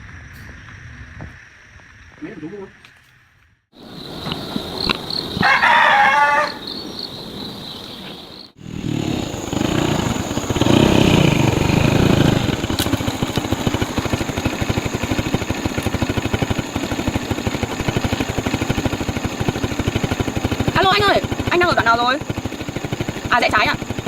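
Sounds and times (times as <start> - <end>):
small engine idling: 8.5 - 24.0.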